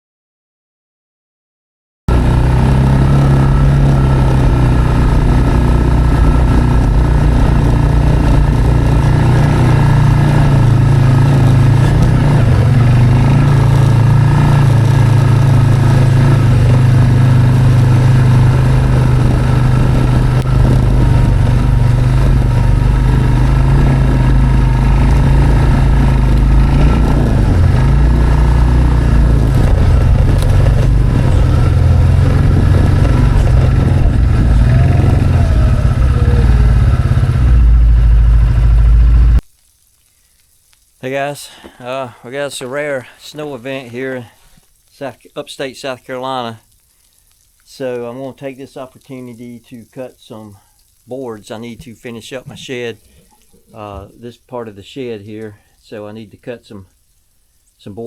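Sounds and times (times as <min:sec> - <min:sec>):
small gasoline engine running: 0:02.1 - 0:39.4.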